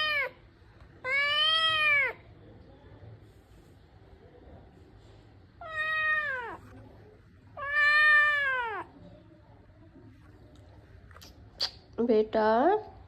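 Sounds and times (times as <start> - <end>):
cat meowing: 0.0 - 0.4, 1.0 - 2.2, 5.6 - 6.7, 7.6 - 8.9.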